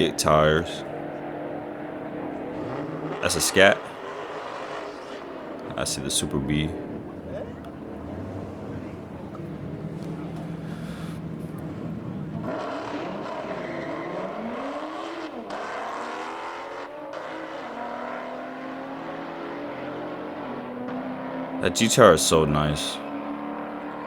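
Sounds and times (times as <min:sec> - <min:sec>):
car engines idling: 0:00.0 - 0:24.0
car engines revving hard: 0:00.0 - 0:24.0.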